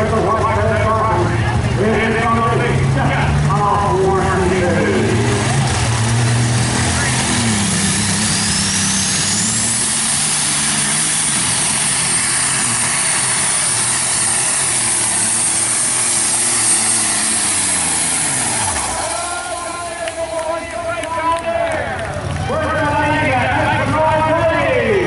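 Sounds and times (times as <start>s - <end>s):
diesel engine at full power: 0.0s - 25.0s
high turbo whistle: 6.8s - 20.2s.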